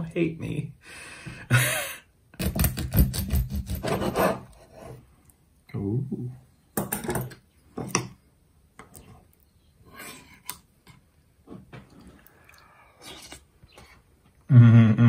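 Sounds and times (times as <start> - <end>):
person eating soup and chewing: 8.8 - 14.4.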